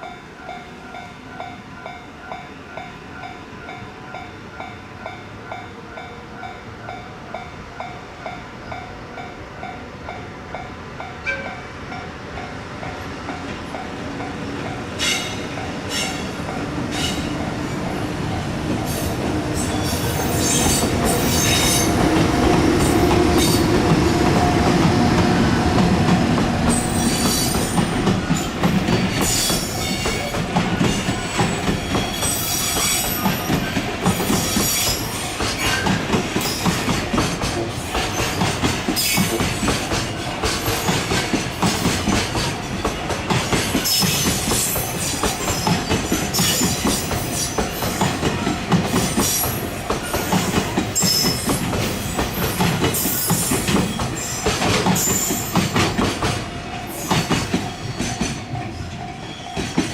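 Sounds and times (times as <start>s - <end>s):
train wheels clicking over rail joints: 12.8s - 59.9s.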